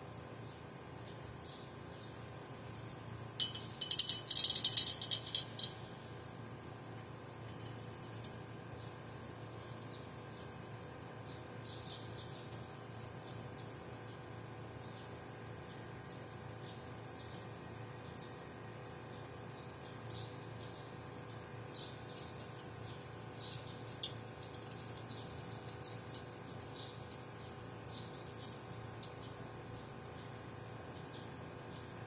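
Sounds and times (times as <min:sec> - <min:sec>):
faint steady hum: 0:00.0 - 0:32.0
insect pulsing trill: 0:02.7 - 0:06.0.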